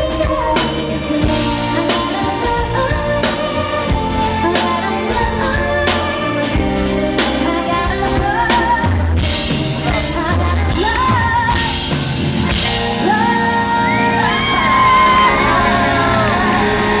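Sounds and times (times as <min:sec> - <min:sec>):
band playing with singing: 0:00.0 - 0:17.0
crowd whooping and shouting: 0:12.5 - 0:17.0.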